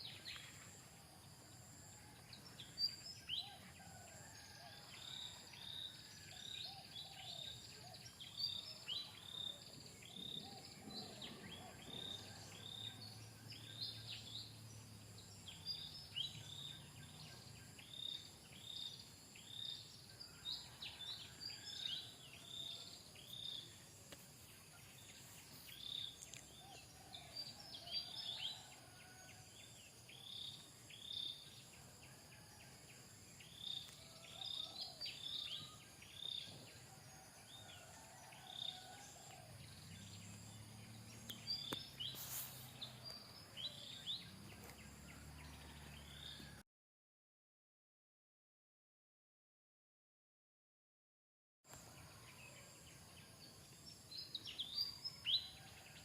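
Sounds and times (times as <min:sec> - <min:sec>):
faint steady hiss: 0:41.2 - 0:43.6.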